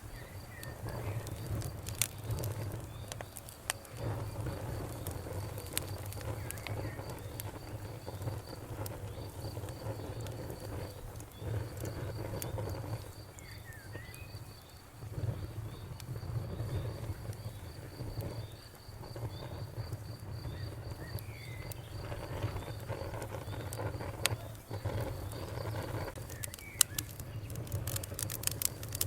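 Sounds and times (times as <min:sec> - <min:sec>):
low rumble of flames: 0:00.0 - 0:29.0
wood fire crackling and popping: 0:00.0 - 0:29.0.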